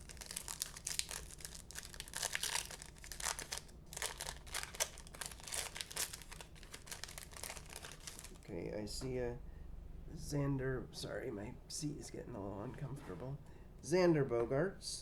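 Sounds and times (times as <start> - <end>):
foil wrapper crinkling: 0.0 - 8.5.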